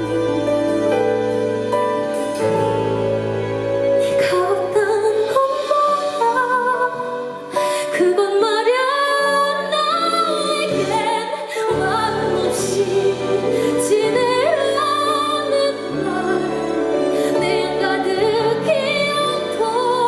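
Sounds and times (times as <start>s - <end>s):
musical accompaniment: 0.0s - 20.0s
woman singing a slow ballad: 4.0s - 20.0s.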